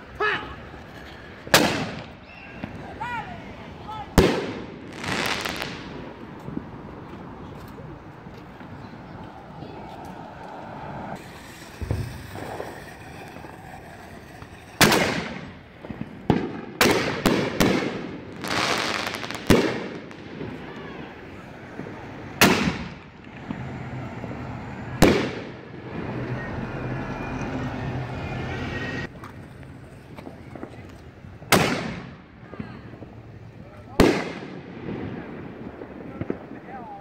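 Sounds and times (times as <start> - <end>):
fireworks exploding: 1.2 - 6.8, 11.1 - 26.2, 29.6 - 37.0.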